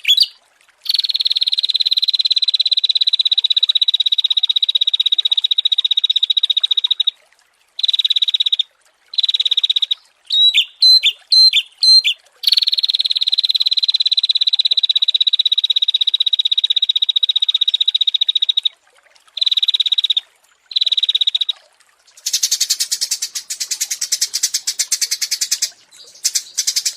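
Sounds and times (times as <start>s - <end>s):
songbirds trilling: 0.0s - 1.0s, 10.3s - 12.6s, 22.1s - 26.9s.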